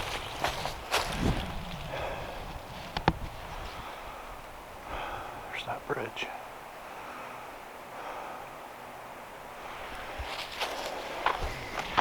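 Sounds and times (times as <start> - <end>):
steady low hiss: 0.0 - 12.0
footstep knock on trail: 10.0 - 12.0.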